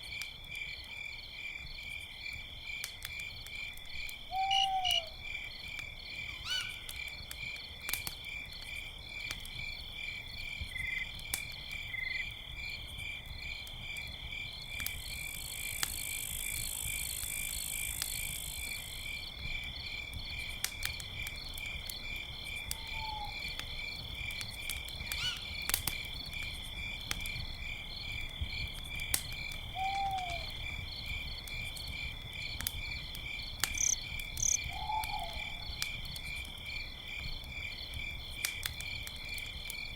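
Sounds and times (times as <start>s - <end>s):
campfire crackling: 0.0s - 39.9s
crickets chirping: 0.1s - 39.9s
owl hooting: 4.3s - 5.2s, 29.8s - 30.5s, 33.8s - 35.6s.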